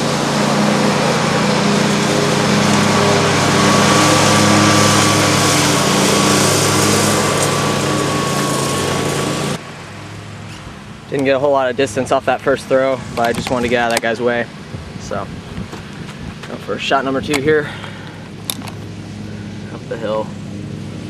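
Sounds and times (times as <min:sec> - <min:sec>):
small engine running: 0:00.0 - 0:09.6, 0:15.8 - 0:21.0.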